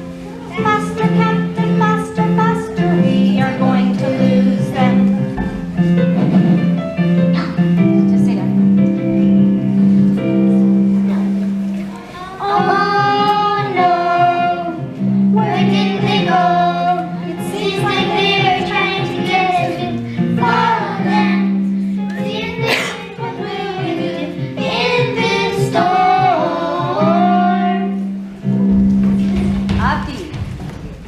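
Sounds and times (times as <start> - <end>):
children singing: 0.0 - 5.7, 11.0 - 28.2
instrumental accompaniment: 0.0 - 31.0.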